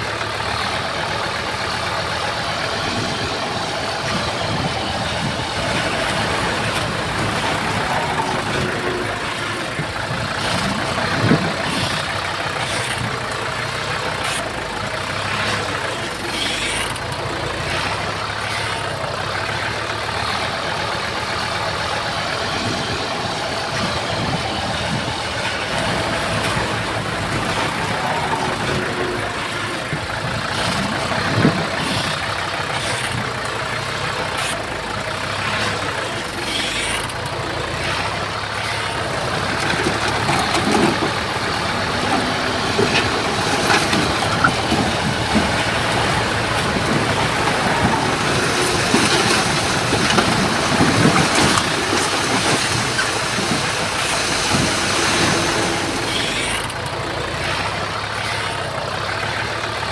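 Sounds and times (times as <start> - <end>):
heavy diesel machinery running: 0.0 - 59.9
metal knocks and clanks: 38.9 - 56.8.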